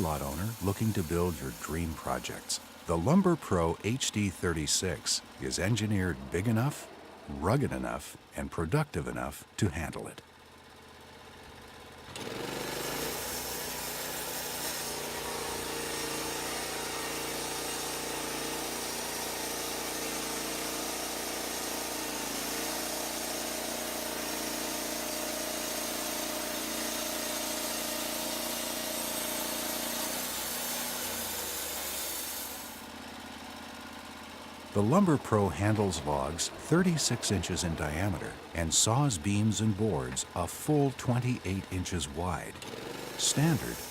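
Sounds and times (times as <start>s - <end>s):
band blade sawing through log: 0.0s - 2.4s, 12.3s - 32.8s, 42.6s - 43.9s
gas engine running: 0.0s - 43.9s.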